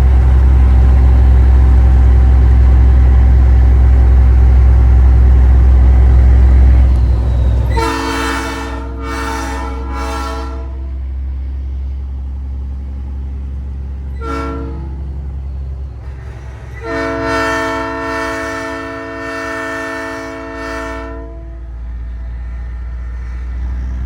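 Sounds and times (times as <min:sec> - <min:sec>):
low engine drone: 0:00.0 - 0:24.0
train horn chord blasts: 0:07.7 - 0:11.1, 0:14.2 - 0:15.2, 0:16.8 - 0:21.7.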